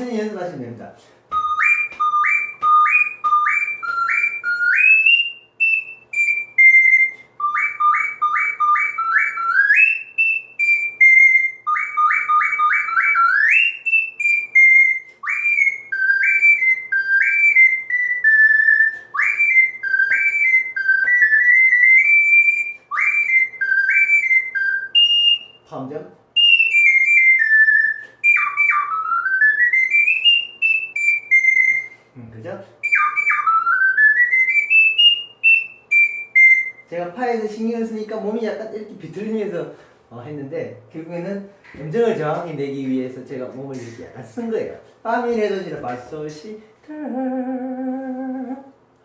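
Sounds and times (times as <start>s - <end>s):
ocarina playing: 1.3s - 37.0s, 46.9s - 48.8s.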